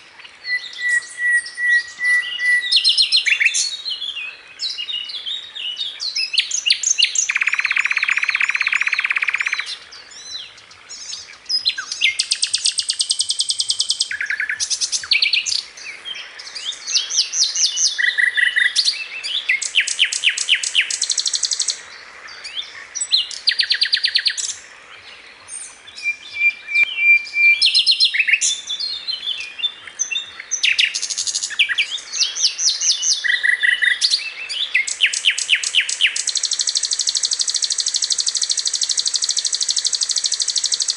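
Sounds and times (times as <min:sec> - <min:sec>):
flycatcher singing trills: 0:06.0 - 0:21.8, 0:25.4 - 0:40.9.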